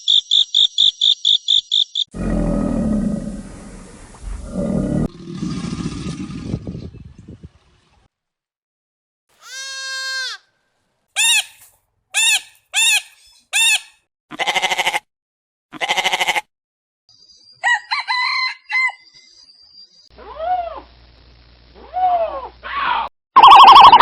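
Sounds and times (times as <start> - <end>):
bleats: 9.4 - 10.5, 14.3 - 15.1, 15.7 - 16.5.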